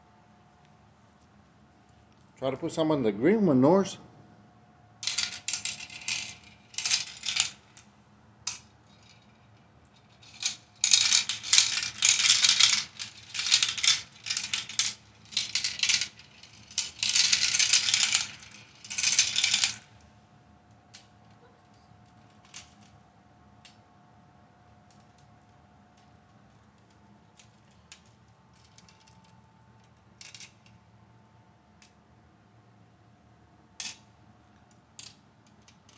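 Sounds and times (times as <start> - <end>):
marbles clattering down plastic run: 5.0 - 7.6, 10.1 - 19.9.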